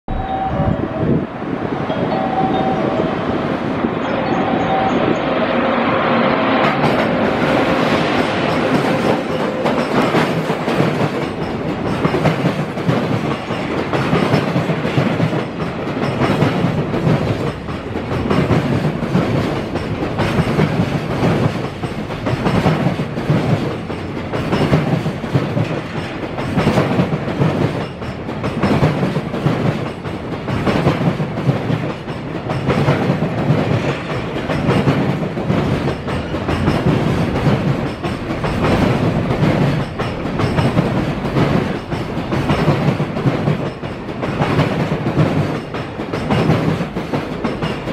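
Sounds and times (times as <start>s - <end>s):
train rolling rumble: 0.1s - 47.9s.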